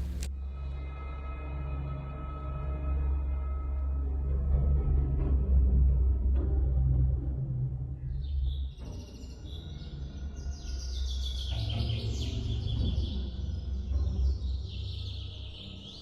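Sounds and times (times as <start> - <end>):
songbirds chirping and trilling: 8.1 - 16.0.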